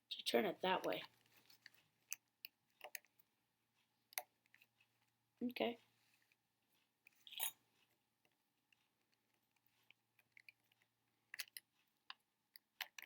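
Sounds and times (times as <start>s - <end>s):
small plastic clicks: 8.2s - 13.0s.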